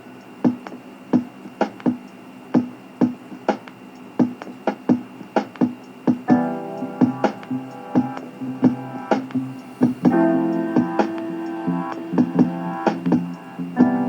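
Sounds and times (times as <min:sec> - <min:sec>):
drum beat: 0:00.4 - 0:14.0
keyboard chords: 0:04.2 - 0:14.0.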